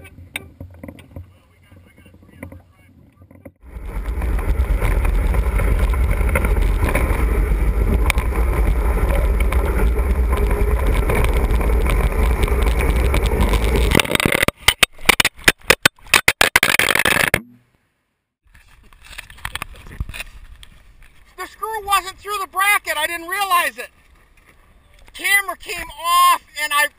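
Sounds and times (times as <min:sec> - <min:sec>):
wind rush on microphone: 0:00.0 - 0:14.5
wheel rumble: 0:00.0 - 0:14.7
camera knocking and clattering on ground: 0:00.3 - 0:17.4, 0:18.5 - 0:21.2.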